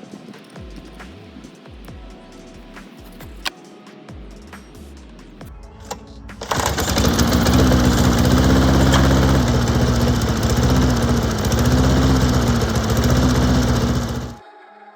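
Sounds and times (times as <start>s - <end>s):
lawn mower engine running: 5.8s - 14.4s.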